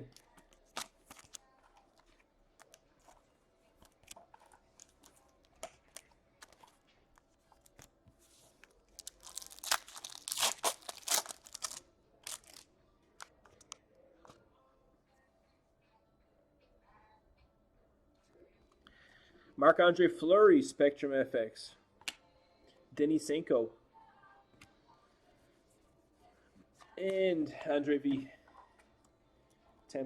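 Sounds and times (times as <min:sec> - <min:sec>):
cards clicking and rustling: 0:00.2 - 0:01.4, 0:08.5 - 0:12.6
wrapper tearing and crinkling: 0:08.9 - 0:13.3.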